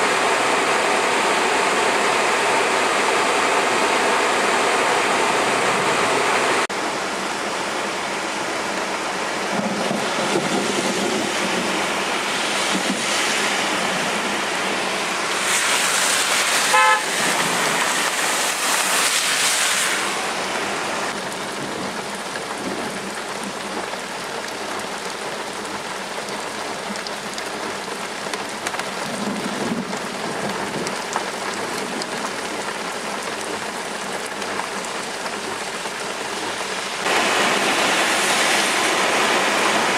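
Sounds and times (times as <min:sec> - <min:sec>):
hard rain falling: 0:00.0 - 0:39.9
hissing water: 0:09.6 - 0:21.5, 0:22.6 - 0:39.9
car horn toot: 0:16.7 - 0:17.2.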